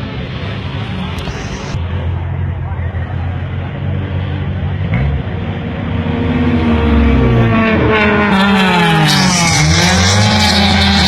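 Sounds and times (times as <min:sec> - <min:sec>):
race car engine accelerating: 0:04.8 - 0:11.0.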